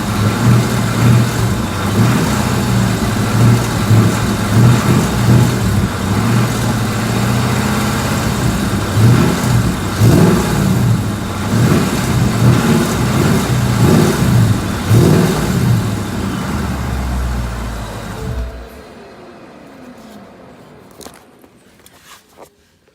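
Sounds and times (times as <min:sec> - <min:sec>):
car engine revving: 0:00.0 - 0:20.0
faint engine tick: 0:02.9 - 0:06.8.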